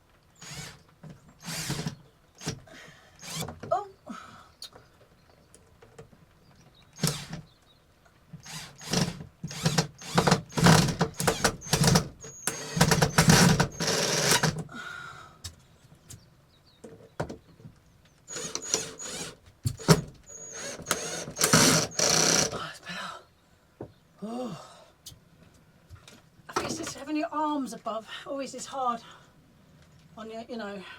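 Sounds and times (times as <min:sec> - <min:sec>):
electric screwdriver driving screws: 0:00.4 - 0:02.6, 0:03.2 - 0:03.6, 0:07.0 - 0:07.4, 0:08.4 - 0:14.6, 0:18.3 - 0:22.6.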